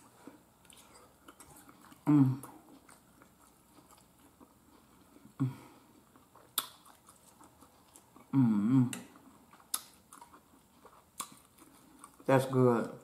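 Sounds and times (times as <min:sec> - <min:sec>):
person chewing: 0:00.0 - 0:12.5
person humming mm: 0:02.0 - 0:02.6, 0:08.3 - 0:09.1.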